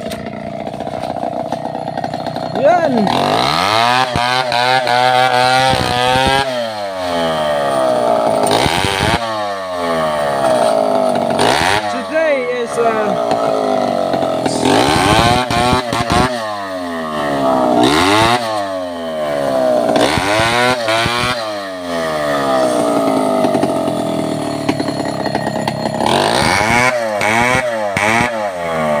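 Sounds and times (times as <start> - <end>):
chainsaw revving: 0.0 - 29.0.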